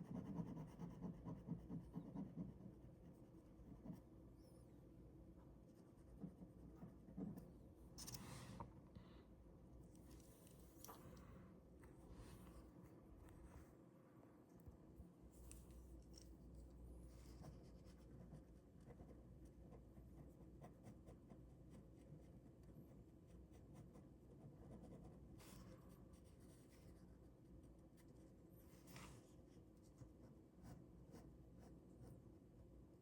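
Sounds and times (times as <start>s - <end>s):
pen scratching on paper: 0.0s - 4.0s.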